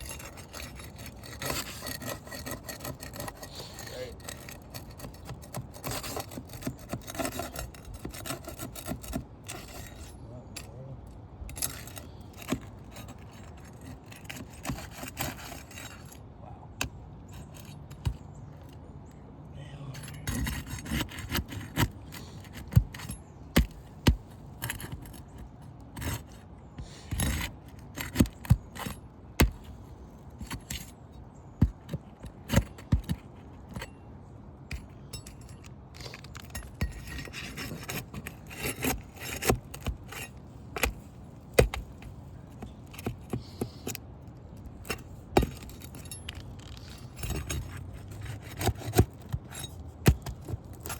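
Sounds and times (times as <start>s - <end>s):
roof shingles scraping and clicking: 0.0s - 10.1s, 11.6s - 16.2s, 34.7s - 50.9s.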